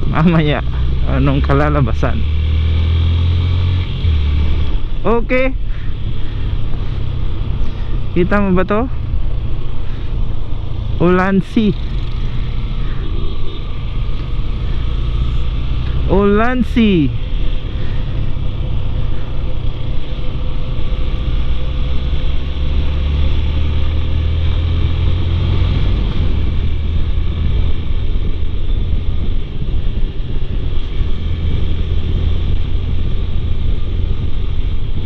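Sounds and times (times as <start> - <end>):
faint motorcycle engine: 0.0 - 35.0
wind and road rumble: 0.0 - 35.0.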